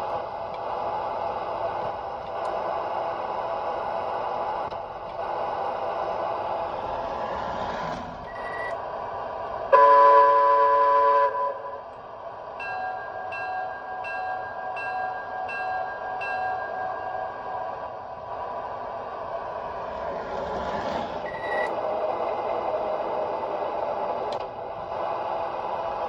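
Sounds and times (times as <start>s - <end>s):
toy locomotive running hum: 0.0s - 8.9s, 9.7s - 26.0s
toy locomotive horn blast: 9.7s - 11.9s
toy locomotive bell ringing: 12.6s - 17.6s.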